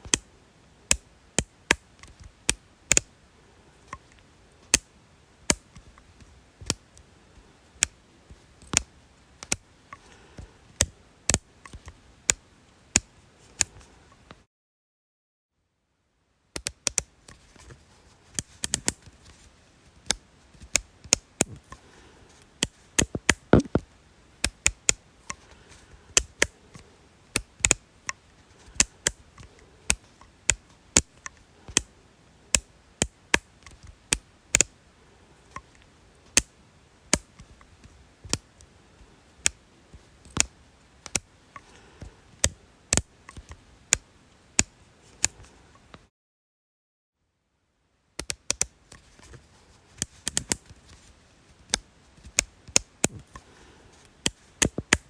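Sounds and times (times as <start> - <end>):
sharp clicks of small hard object: 54.2 - 55.0.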